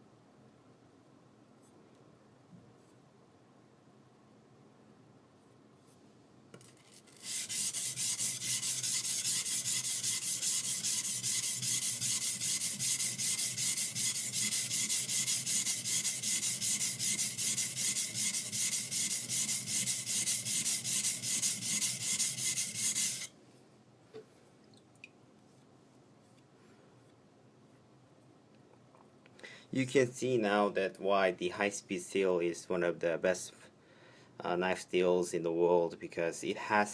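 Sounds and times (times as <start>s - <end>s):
knife grinding on whetstone: 6.6s - 23.3s.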